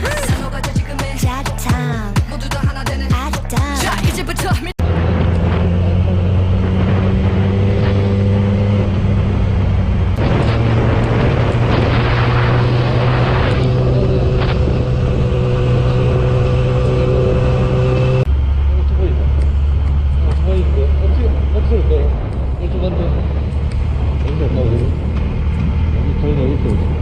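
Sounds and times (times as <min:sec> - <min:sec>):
rushing wind noise: 0:04.8 - 0:20.4
motorcycle engine running: 0:04.8 - 0:27.0.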